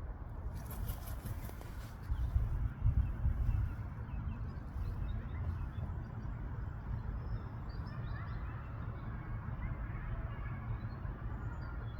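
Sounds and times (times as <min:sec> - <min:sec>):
faint bird chirps: 0:03.0 - 0:11.9.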